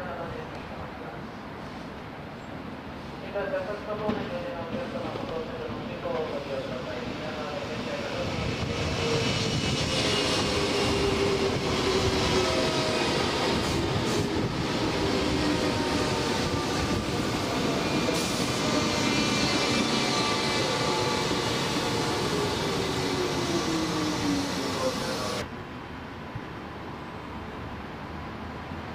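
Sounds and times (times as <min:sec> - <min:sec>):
train whining tone: 0:07.8 - 0:25.4.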